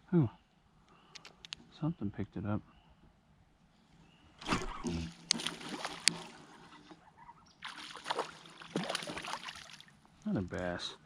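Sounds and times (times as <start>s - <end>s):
water splashing: 4.4s - 6.9s, 7.6s - 10.0s
kayak hull and gear noises: 4.4s - 9.4s.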